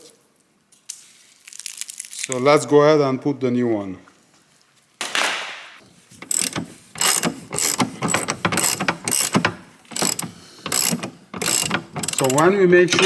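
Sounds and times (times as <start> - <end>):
hand ratchet clicking: 6.2 - 13.0
rasping noise: 6.2 - 13.0.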